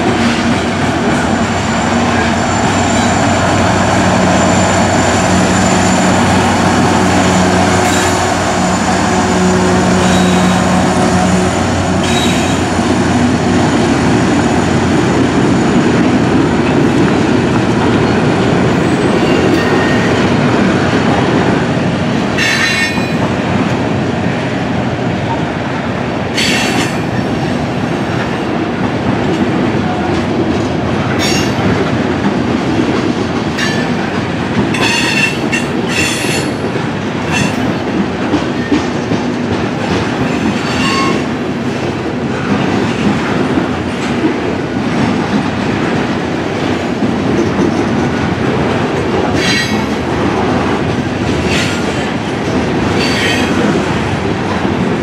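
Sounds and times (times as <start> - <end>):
locomotive engine drone: 0.0 - 22.6
freight cars rumbling and clattering: 0.0 - 55.0
wheel squeals: 7.3 - 10.6.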